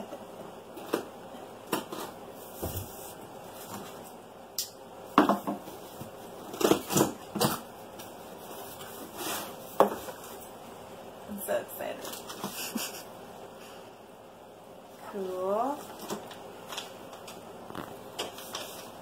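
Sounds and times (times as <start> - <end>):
packaging rustling: 15.9 - 19.0.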